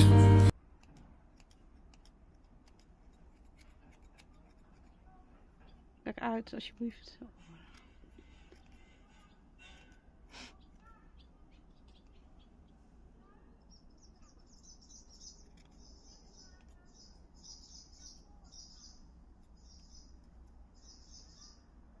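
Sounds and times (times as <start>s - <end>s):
small scissors snipping: 0.7s - 5.0s.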